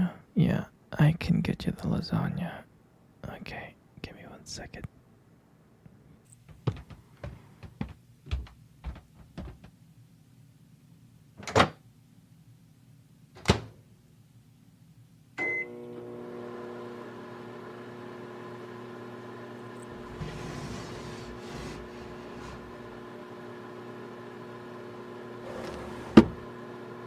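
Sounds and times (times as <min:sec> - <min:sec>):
microwave oven humming: 0:15.4 - 0:27.0.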